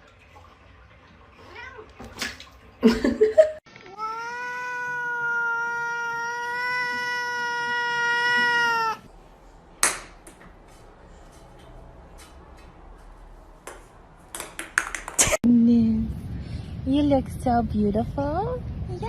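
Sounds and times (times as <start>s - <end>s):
cat yowling: 3.9s - 9.1s.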